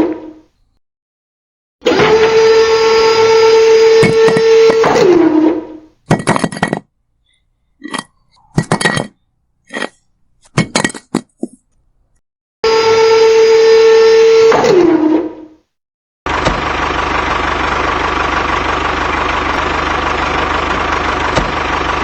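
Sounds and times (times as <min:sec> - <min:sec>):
small electric motor whining: 0:01.8 - 0:05.9
small bricks clinking and clattering: 0:06.1 - 0:06.9, 0:07.8 - 0:11.7.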